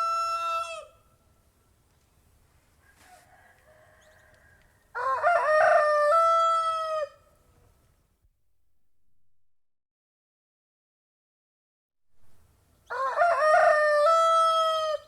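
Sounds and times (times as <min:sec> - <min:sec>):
rooster crowing: 0:00.0 - 0:01.0, 0:02.8 - 0:07.3, 0:12.9 - 0:15.0.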